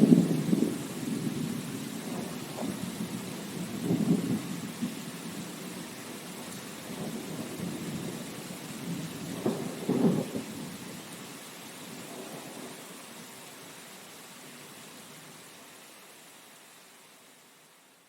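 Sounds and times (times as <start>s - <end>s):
low rumbles of thunder: 0.0s - 11.0s, 12.0s - 12.8s
steady rain: 0.0s - 18.0s.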